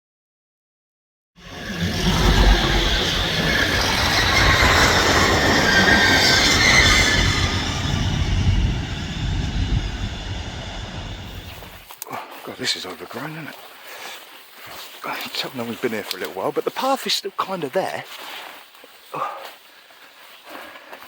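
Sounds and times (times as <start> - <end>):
train passing with rushing rumble: 1.4 - 11.8.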